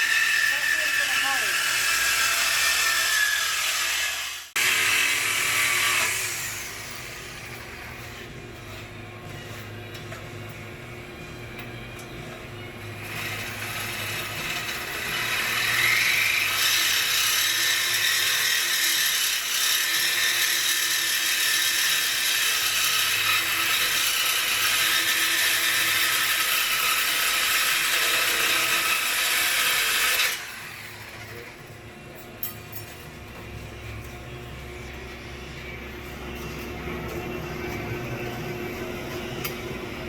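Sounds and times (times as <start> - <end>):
power tool whirring: 0.0 - 9.8, 13.0 - 31.6.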